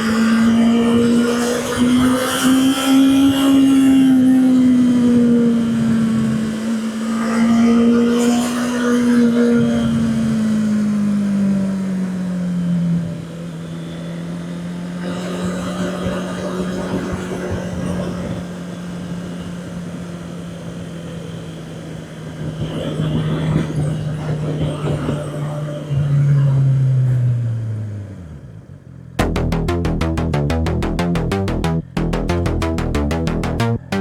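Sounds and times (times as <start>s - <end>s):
motorcycle engine running: 29.2s - 34.0s.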